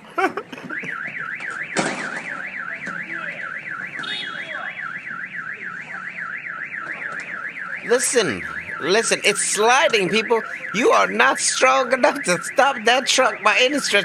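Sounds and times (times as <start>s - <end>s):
car alarm warbling siren: 0.0s - 14.0s.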